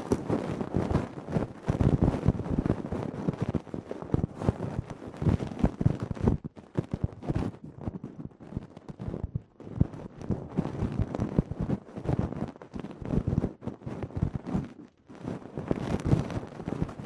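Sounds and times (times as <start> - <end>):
ear pick scratching: 0.0 - 1.0.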